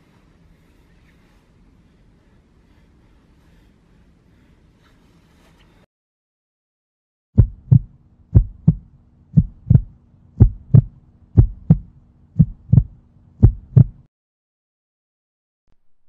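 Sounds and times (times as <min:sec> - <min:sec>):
faint steady hum: 0:00.0 - 0:05.8, 0:07.4 - 0:14.1
heartbeat double thumps: 0:07.4 - 0:14.1.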